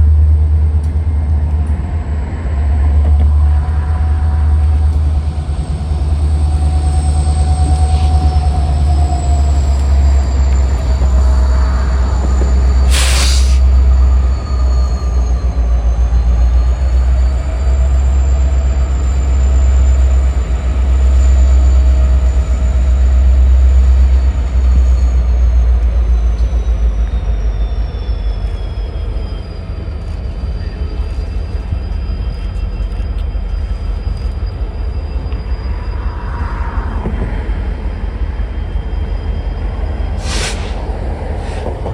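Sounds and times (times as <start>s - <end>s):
train cars rumbling: 0.0s - 41.9s
high wheel squeal: 3.4s - 41.9s.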